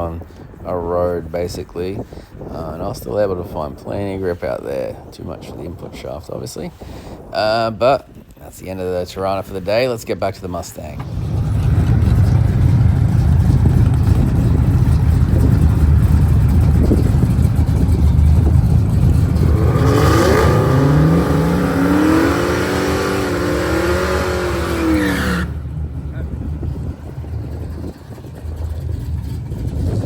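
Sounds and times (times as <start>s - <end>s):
car engine rumbling and revving: 10.8s - 30.0s.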